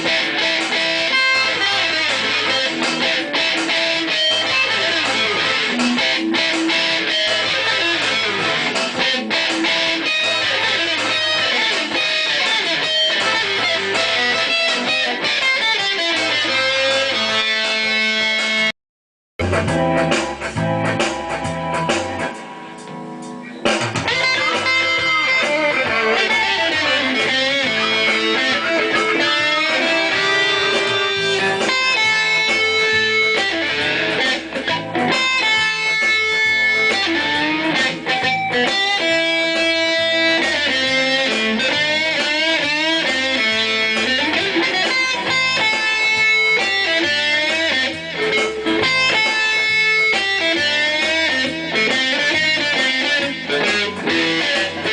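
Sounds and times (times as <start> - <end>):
electric guitar music: 0.0 - 18.7, 19.4 - 54.9.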